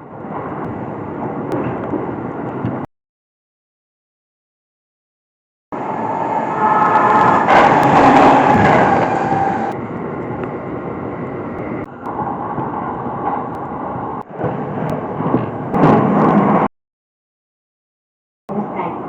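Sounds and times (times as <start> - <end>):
train rumbling on rails: 0.0 - 2.9, 5.8 - 16.7.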